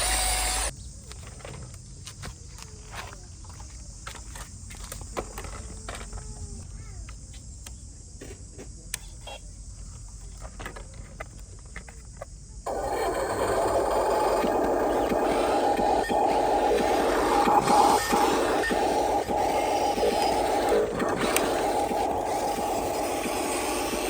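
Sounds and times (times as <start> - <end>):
toy truck electric motor whining: 0.0 - 0.7, 12.7 - 24.0
loud steady sound: 12.7 - 24.0.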